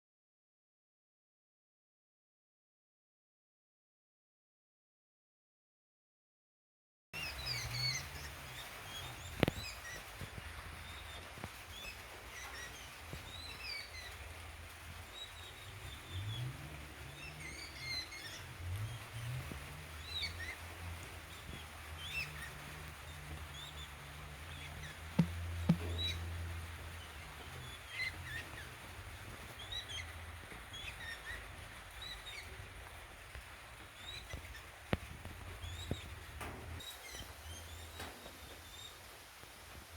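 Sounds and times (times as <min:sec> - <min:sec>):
steady hiss: 0:07.2 - 0:39.9
wild birds chirping: 0:07.2 - 0:39.9
low steady rumble: 0:12.4 - 0:39.0
sharp ticks: 0:24.8 - 0:26.7.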